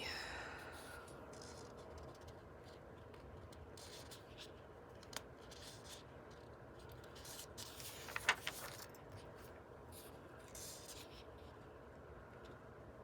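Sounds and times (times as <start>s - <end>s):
paper pages rustling: 7.1s - 9.0s.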